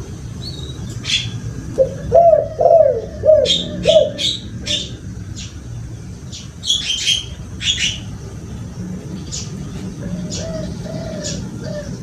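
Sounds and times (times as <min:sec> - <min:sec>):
small birds chirping: 0:00.3 - 0:12.0
dove cooing: 0:01.0 - 0:05.0, 0:09.9 - 0:12.0.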